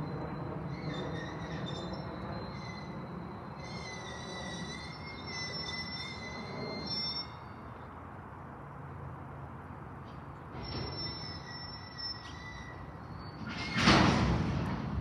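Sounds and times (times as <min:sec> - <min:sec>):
wheel squeal: 0:00.0 - 0:07.6, 0:10.5 - 0:14.1
freight cars rumbling on rails: 0:00.0 - 0:08.1, 0:08.7 - 0:15.0.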